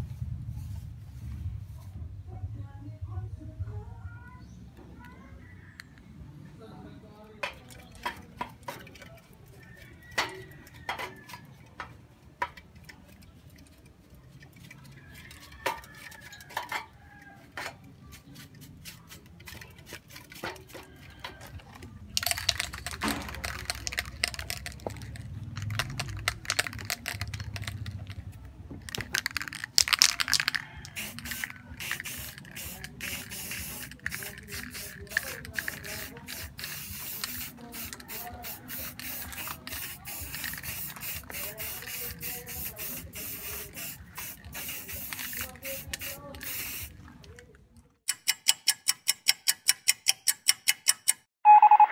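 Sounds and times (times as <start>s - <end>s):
spray can rattling when shaken: 7.4s - 47.6s
spray can handling clicks: 17.6s - 51.3s
hissing paint spray: 22.2s - 28.2s, 28.9s - 47.0s
short spray spurts: 28.9s - 47.1s.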